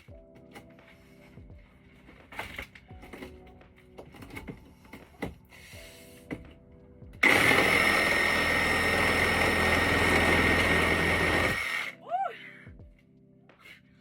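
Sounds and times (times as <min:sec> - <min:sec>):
faint background music: 0:00.0 - 0:14.0
power drill boring through wall: 0:07.2 - 0:11.9.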